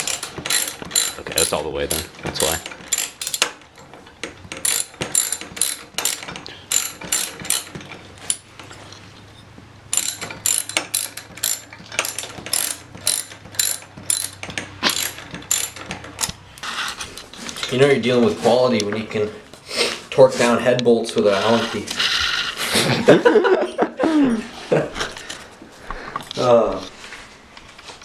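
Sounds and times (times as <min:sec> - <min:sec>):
ratchet wrench clicking: 0:00.0 - 0:02.1, 0:02.9 - 0:03.6, 0:04.6 - 0:07.7, 0:09.9 - 0:15.9.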